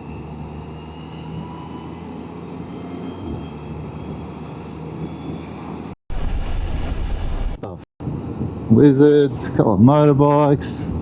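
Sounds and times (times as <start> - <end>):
wind noise: 6.1 - 8.8.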